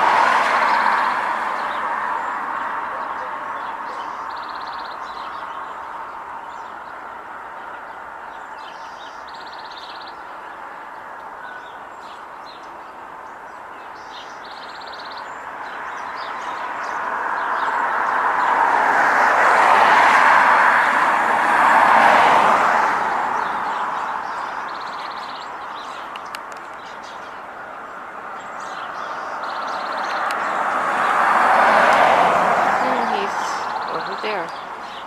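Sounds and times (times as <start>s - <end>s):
vehicle passing: 0.0s - 3.9s, 17.8s - 25.1s, 29.0s - 35.0s
distant traffic: 0.0s - 7.4s, 15.7s - 35.0s.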